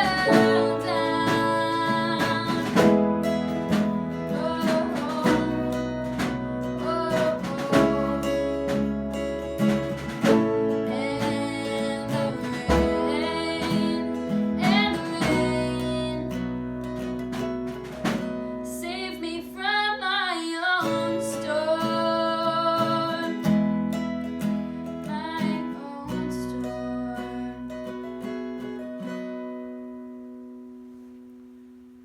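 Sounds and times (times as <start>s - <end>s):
person singing: 0.0s - 3.2s, 3.8s - 8.9s, 10.3s - 16.4s
bass line: 0.0s - 19.0s
strummed acoustic guitar: 0.0s - 32.0s.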